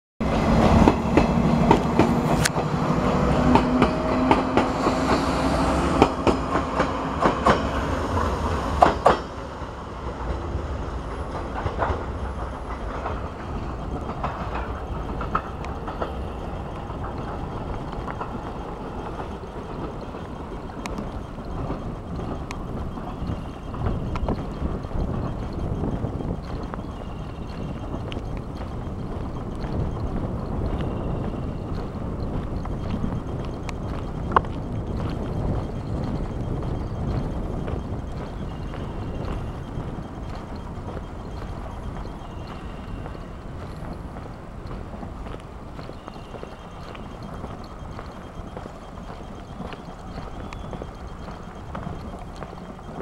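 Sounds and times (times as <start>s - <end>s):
train motor hum: 0.2s - 53.0s
train rumble: 0.2s - 53.0s
wheels clicking over rail joints: 0.2s - 53.0s.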